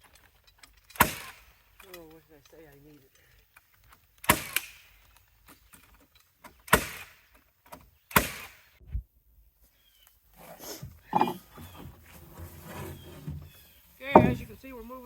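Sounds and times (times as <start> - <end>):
nail gun firing into wood: 0.9 - 1.5, 4.2 - 4.9, 6.6 - 7.3, 8.1 - 8.7.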